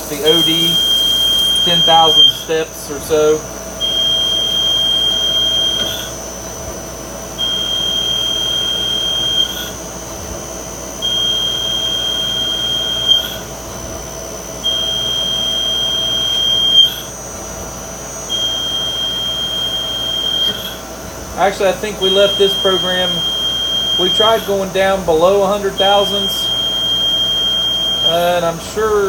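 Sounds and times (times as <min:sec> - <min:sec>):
lathe tool squealing: 0:00.0 - 0:06.2
faint machine whine: 0:00.0 - 0:29.0.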